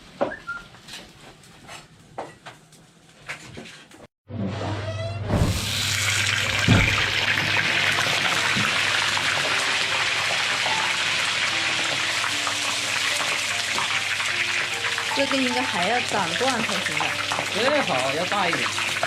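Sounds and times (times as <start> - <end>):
water running from a tap: 5.6 - 19.0
knock: 6.7 - 7.0.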